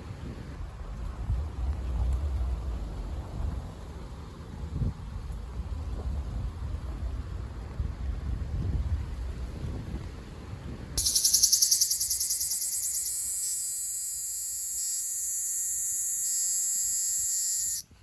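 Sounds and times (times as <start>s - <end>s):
wind noise on microphone: 0.0s - 13.7s
cicada buzzing: 11.0s - 17.9s.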